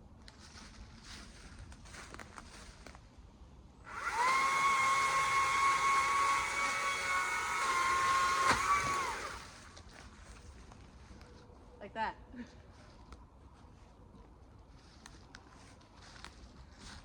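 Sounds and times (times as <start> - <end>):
chainsaw revving: 3.9 - 9.6.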